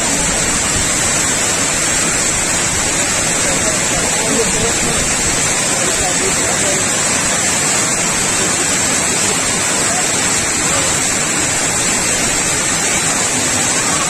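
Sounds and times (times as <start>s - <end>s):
water rushing over spillway: 0.0s - 14.0s.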